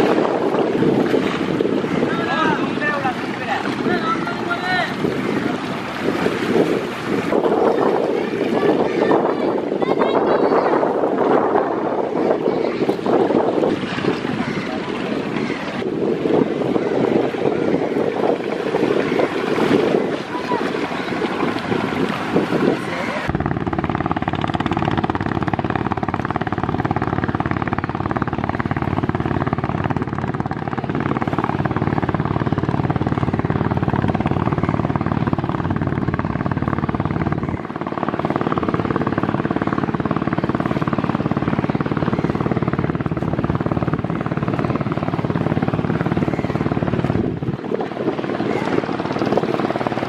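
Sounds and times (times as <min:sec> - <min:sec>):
boat engine throbbing: 0:00.0 - 0:50.0.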